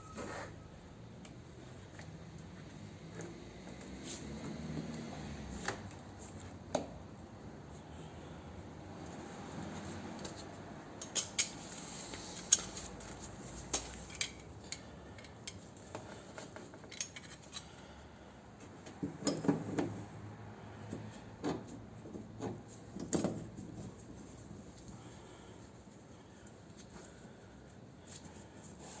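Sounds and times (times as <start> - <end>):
clinks of small tools: 11.0 - 11.7, 13.7 - 17.8.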